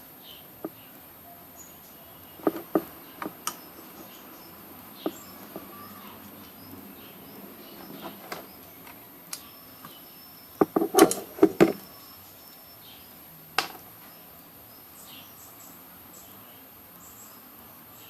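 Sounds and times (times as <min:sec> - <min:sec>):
insects chirping: 0:00.0 - 0:18.0
sharp knocks and clicks: 0:02.4 - 0:03.6, 0:10.6 - 0:11.9.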